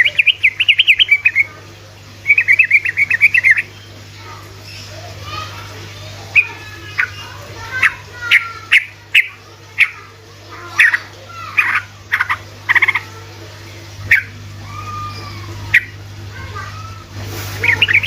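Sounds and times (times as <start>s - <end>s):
bird chirping song: 0.0s - 1.5s, 2.2s - 4.0s
steady low hum: 0.0s - 18.0s.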